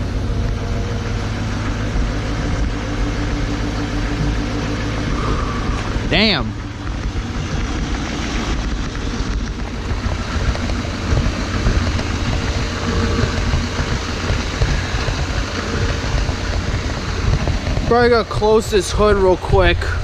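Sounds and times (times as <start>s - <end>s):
diesel engine idling: 0.0s - 20.0s
engine fan and belts hiss: 0.0s - 20.0s.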